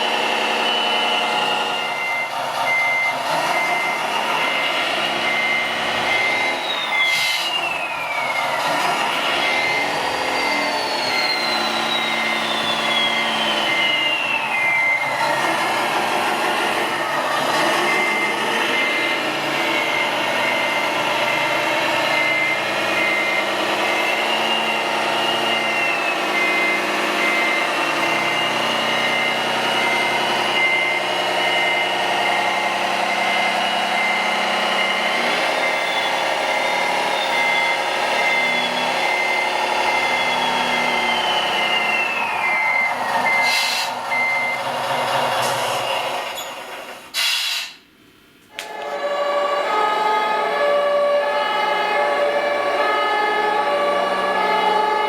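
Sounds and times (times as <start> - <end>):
reversing beeper short beeps: 0.4 - 15.3, 16.8 - 44.7.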